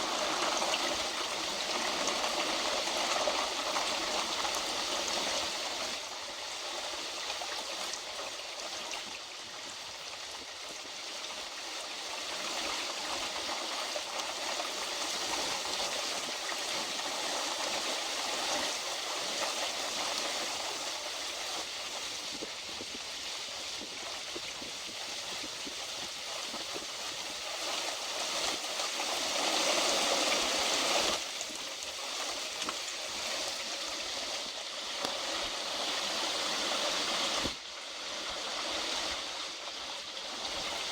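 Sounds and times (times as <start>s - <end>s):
heavy rain pouring: 0.0s - 8.0s.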